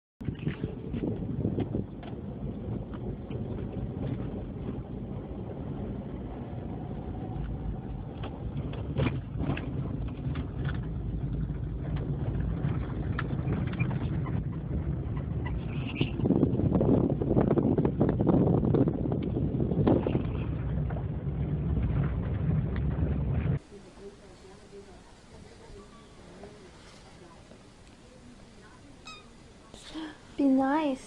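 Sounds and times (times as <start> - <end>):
car cabin rumble: 0.2 - 23.6.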